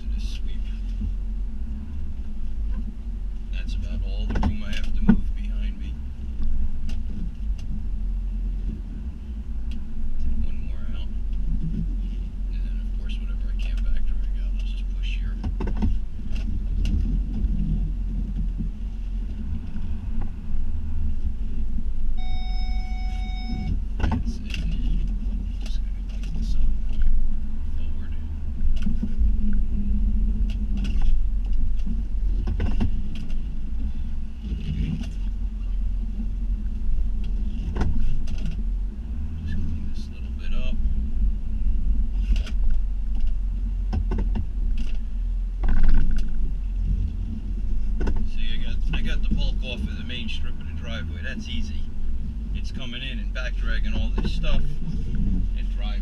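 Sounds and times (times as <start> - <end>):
truck engine low rumble: 0.0 - 56.0
steady electronic beep: 22.2 - 23.8
clicks and creaks: 30.4 - 35.8, 37.2 - 38.7, 42.2 - 47.3.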